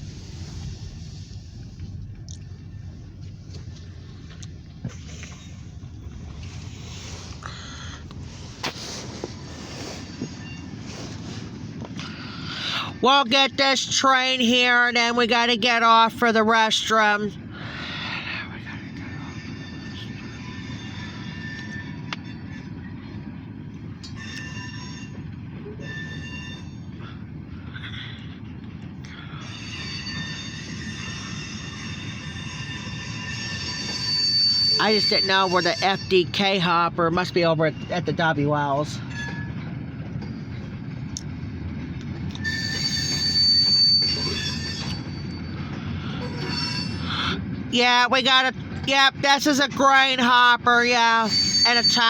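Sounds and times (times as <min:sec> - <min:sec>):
freight train rumbling past: 0:00.0 - 0:52.0
high-pitched wheel squeal: 0:19.1 - 0:22.8, 0:24.1 - 0:27.0, 0:29.4 - 0:36.7, 0:39.0 - 0:39.7, 0:42.3 - 0:47.4, 0:51.2 - 0:52.0.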